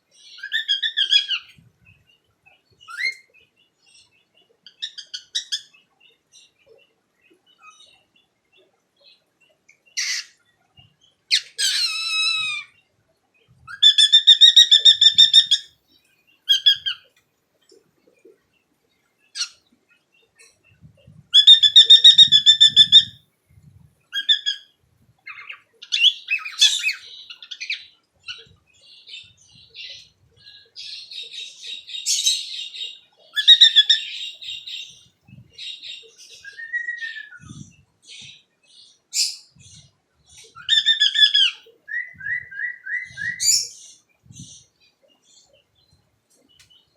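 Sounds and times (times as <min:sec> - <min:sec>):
cockatiel chirping: 0:00.2 - 0:01.5, 0:13.8 - 0:15.7, 0:16.5 - 0:17.1, 0:21.4 - 0:23.1, 0:29.1 - 0:34.9, 0:40.6 - 0:43.8.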